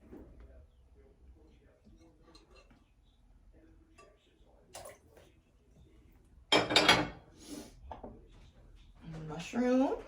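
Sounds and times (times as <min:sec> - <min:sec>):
dishes and utensil clattering: 0:01.9 - 0:03.0, 0:06.5 - 0:08.2.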